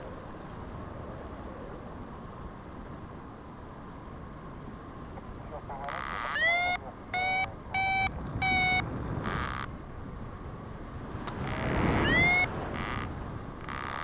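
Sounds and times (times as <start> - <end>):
wind on microphone: 5.2 - 14.0
variometer beeping: 5.9 - 9.7, 11.5 - 14.0.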